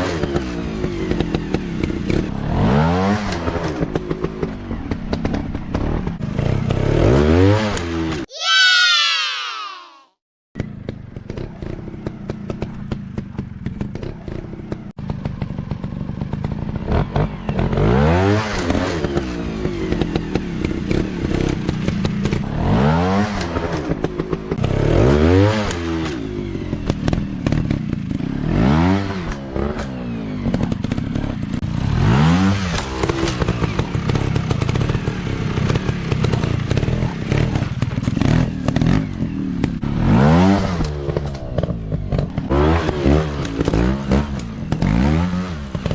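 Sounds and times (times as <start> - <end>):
dirt bike engines revving: 11.2 - 45.9.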